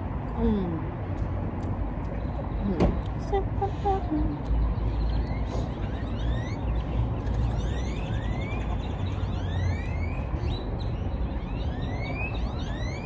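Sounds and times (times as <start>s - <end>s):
steady low rumble: 0.0s - 5.9s
birds chirping: 2.0s - 13.0s.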